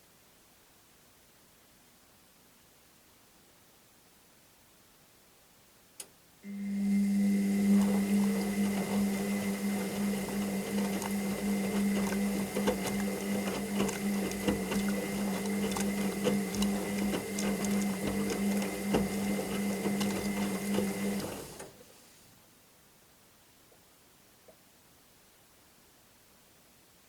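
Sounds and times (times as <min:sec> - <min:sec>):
washing machine motor hum: 0:06.4 - 0:21.8.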